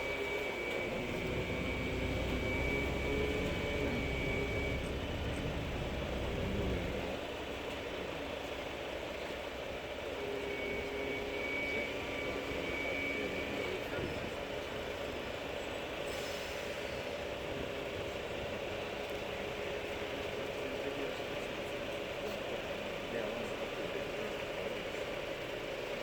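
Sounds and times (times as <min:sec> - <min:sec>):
tram rumbling: 0:00.0 - 0:26.0
low hum: 0:00.9 - 0:07.2.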